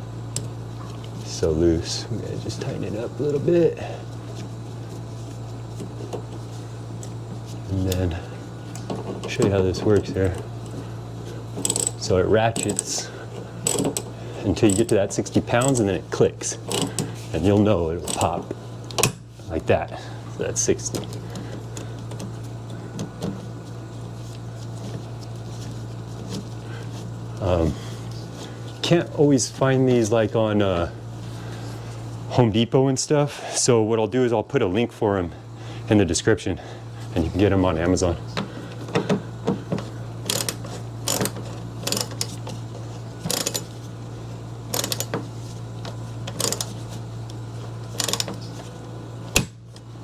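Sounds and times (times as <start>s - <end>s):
steady low hum: 0.0s - 50.0s
tools clicking and knocking: 11.6s - 12.0s, 13.6s - 15.0s, 38.4s - 42.6s, 43.2s - 43.7s, 44.7s - 46.8s, 48.0s - 48.4s.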